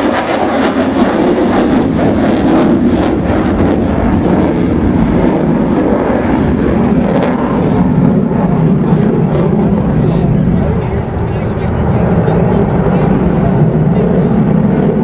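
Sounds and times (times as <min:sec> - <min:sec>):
loud jet engine roar: 0:09.6 - 0:15.0.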